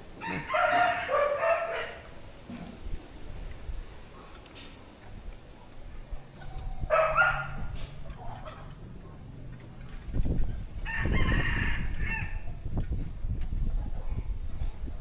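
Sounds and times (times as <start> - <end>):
rooster crowing: 0.2 - 2.0, 10.8 - 12.5.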